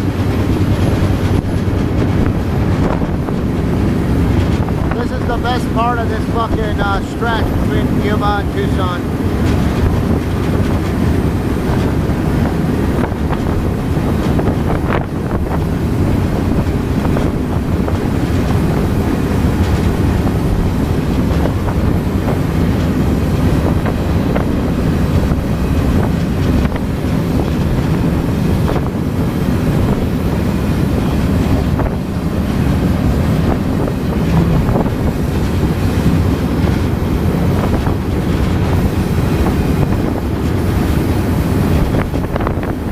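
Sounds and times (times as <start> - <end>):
train wheels on rails: 0.0 - 42.9
wind buffeting microphone: 0.0 - 42.9.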